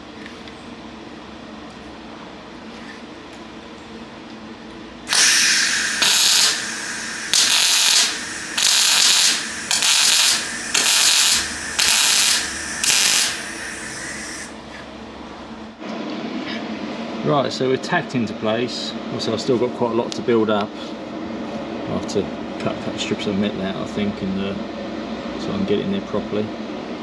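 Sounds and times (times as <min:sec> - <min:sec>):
arc welder crackling hiss: 0:05.1 - 0:14.8.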